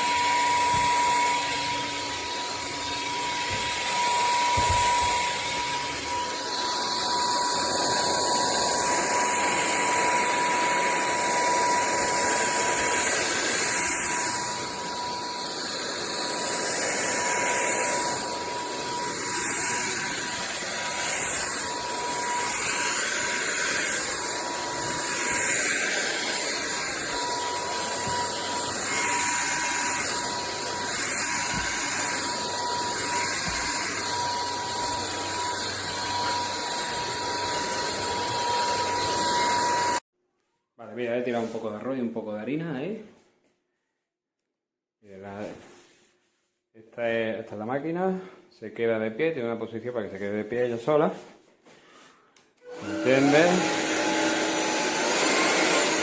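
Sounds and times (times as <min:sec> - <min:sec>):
stick vacuum running: 0:00.0 - 0:40.0, 0:52.6 - 0:56.0.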